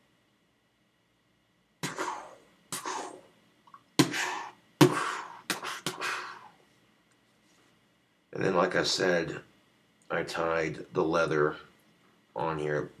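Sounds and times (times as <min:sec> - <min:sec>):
person coughing: 0:01.8 - 0:03.2, 0:04.0 - 0:06.5.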